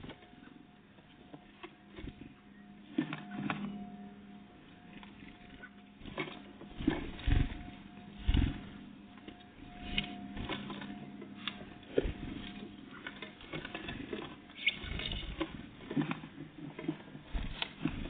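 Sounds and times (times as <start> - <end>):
birds pecking and hopping: 0.0 - 18.0
faint steady hum: 0.0 - 18.0
low thumps: 6.0 - 12.7.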